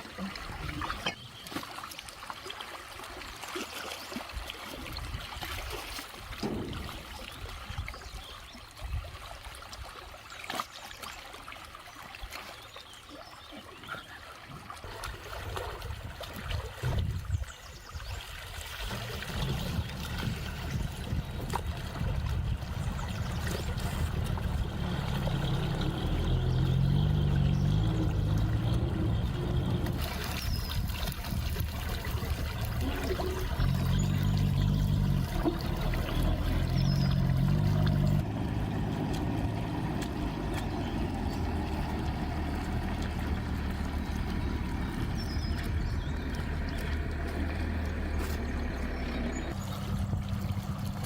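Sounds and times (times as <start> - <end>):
small water splashes: 0.0 - 51.0
water trickling and running: 0.0 - 51.0
low rumble: 19.0 - 51.0.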